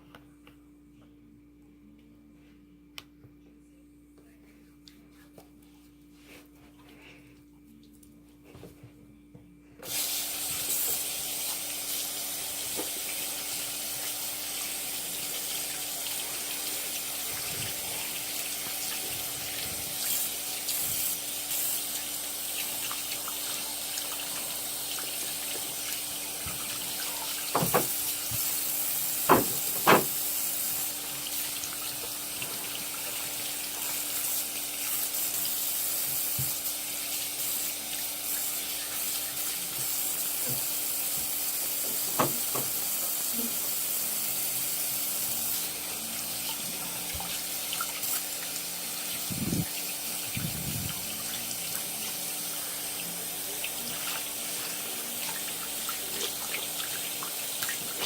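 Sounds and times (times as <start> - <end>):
faint steady hum: 0.0 - 35.6.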